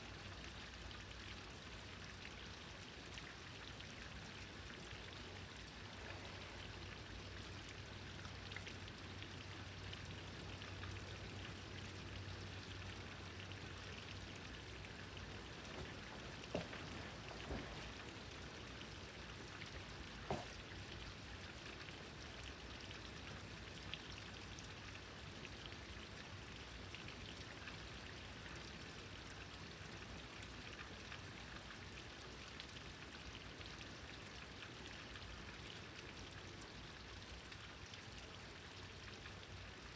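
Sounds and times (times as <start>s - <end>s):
faint rain falling: 0.0s - 39.9s
sharp taps: 20.3s - 20.6s.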